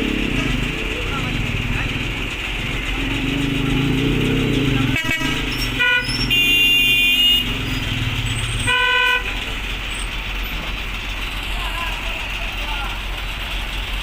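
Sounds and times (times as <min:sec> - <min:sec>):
truck engines running: 0:00.0 - 0:14.0
vehicle horns: 0:04.8 - 0:09.5.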